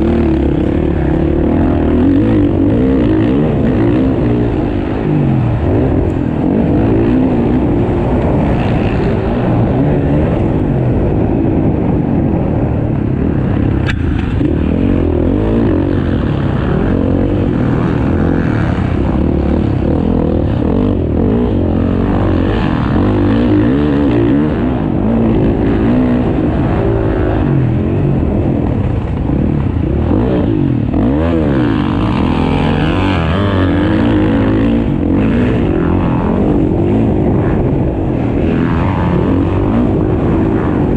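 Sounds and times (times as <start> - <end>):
motocross bikes revving: 0.0 - 40.9.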